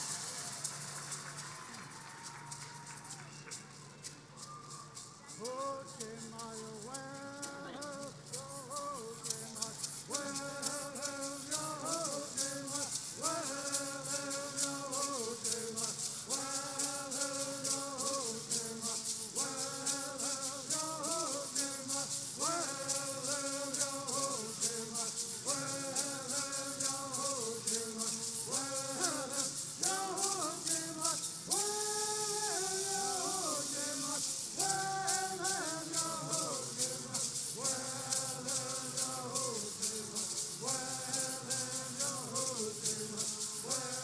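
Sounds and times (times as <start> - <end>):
gourd rattles shaken: 0.0 - 44.0
group chanting in unison: 9.4 - 44.0.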